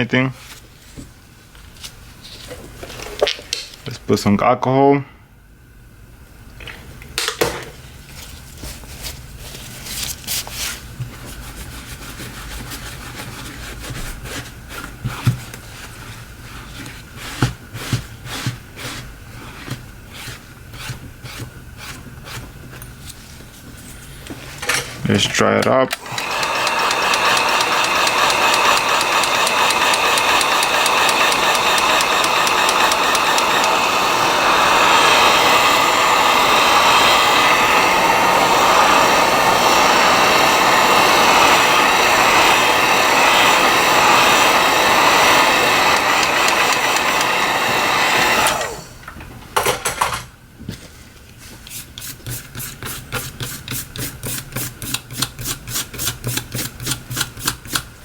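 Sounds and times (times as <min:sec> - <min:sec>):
electric air blower rushing: 0:25.9 - 0:49.1.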